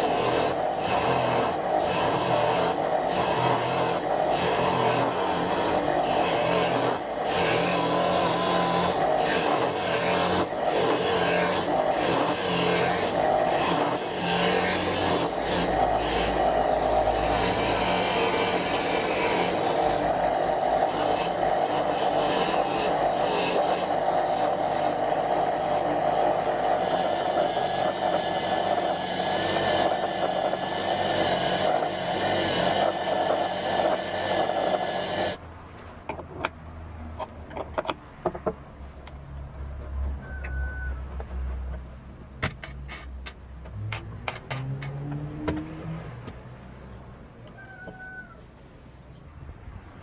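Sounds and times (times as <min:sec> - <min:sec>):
angle grinder grinding: 0:00.0 - 0:35.4.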